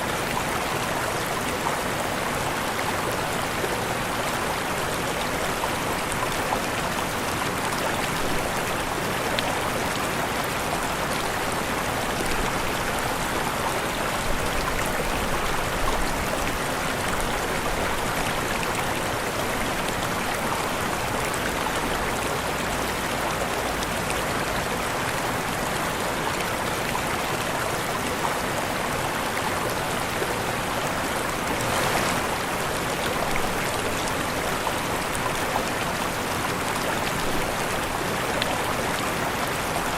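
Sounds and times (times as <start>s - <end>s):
waterfall rushing: 0.1s - 26.3s, 30.0s - 39.9s
water splash: 31.4s - 33.6s.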